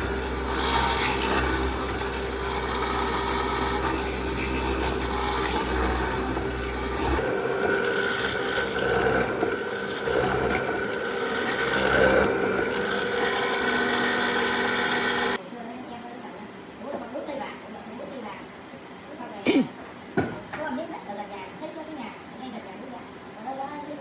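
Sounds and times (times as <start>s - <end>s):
low hum: 0.0s - 15.4s
tool scraping on wood: 0.0s - 15.4s.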